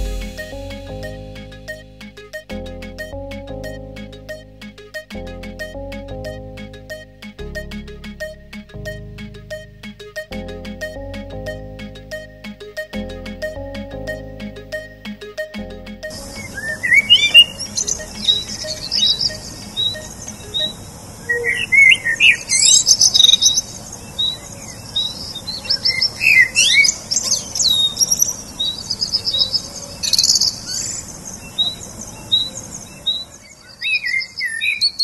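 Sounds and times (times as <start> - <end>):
short high bird chirps: 16.2 - 24.4
bird trills and whistles: 16.3 - 31.0.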